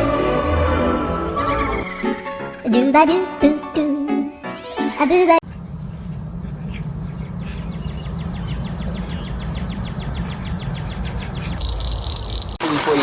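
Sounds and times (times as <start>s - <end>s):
high-pitched insect trill: 5.4s - 12.6s
low rumble: 5.4s - 12.6s.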